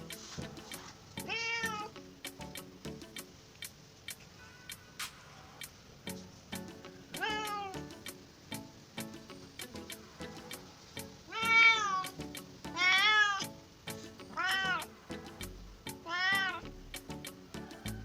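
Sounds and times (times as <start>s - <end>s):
background music with clicking beat: 0.0s - 18.0s
cat meowing: 1.2s - 2.0s, 7.2s - 7.8s, 11.3s - 13.5s, 14.3s - 14.9s, 16.0s - 16.8s.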